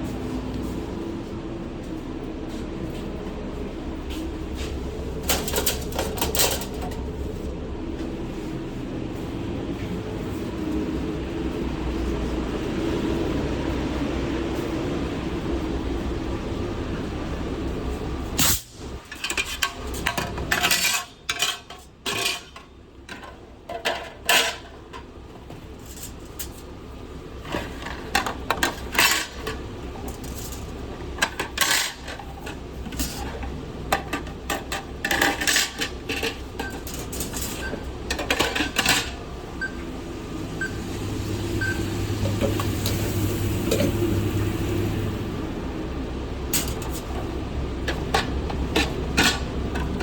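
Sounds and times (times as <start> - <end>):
kitchen equipment hum: 0.0 - 50.0
metal pans and utensils clattering: 4.6 - 7.3, 19.1 - 26.7, 27.4 - 39.3, 46.5 - 50.0.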